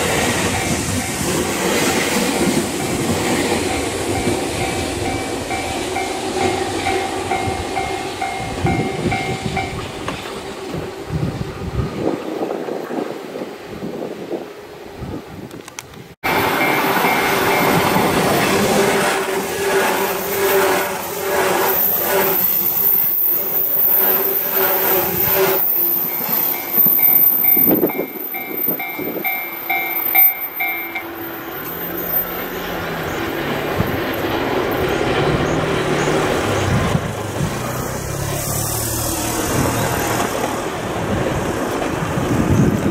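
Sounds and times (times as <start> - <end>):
train hum: 0.0 - 42.9
train rumbling: 0.0 - 42.9
bell-like alarm dinging: 16.3 - 18.8, 22.7 - 32.5.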